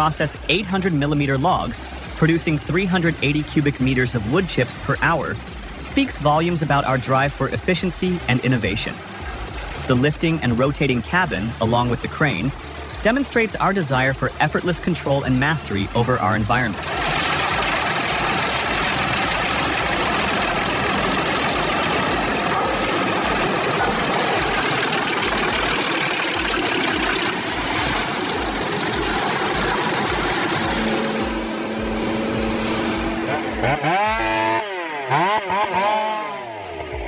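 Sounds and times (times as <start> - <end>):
engine note rising and falling: 0.0 - 37.0
wood chipper running under load: 16.8 - 37.0.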